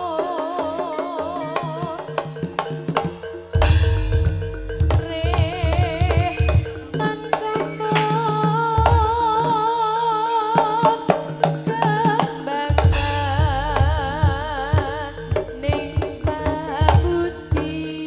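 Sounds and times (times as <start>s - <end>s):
hand drum strokes: 0.6s - 9.7s, 10.7s - 18.0s
high vibrato melody: 2.7s - 8.0s, 12.8s - 16.9s
gong-like tones: 3.6s - 7.1s.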